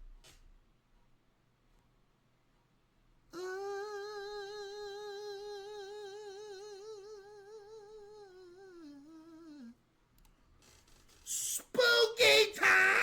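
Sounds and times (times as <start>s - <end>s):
person holding a sung note: 3.3s - 9.8s, 11.3s - 13.0s.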